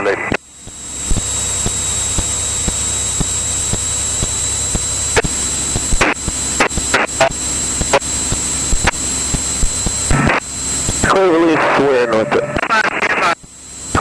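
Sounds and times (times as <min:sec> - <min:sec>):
aircraft engine drone: 0:00.0 - 0:14.0
high electrical whine: 0:00.0 - 0:14.0
radio static crackles: 0:00.0 - 0:14.0.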